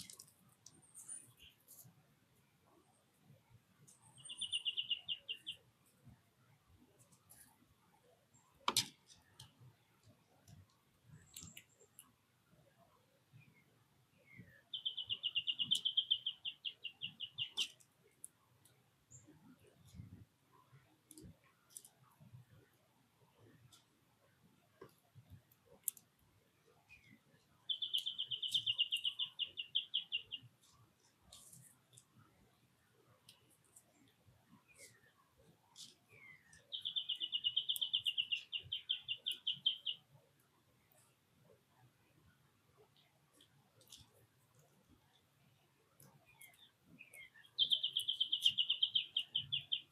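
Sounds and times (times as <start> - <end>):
songbird singing: 0.0 - 1.8, 2.4 - 7.0, 7.9 - 49.9
songbird trilling: 4.1 - 5.6, 14.7 - 17.7, 27.7 - 30.4, 36.2 - 40.0, 46.4 - 49.9.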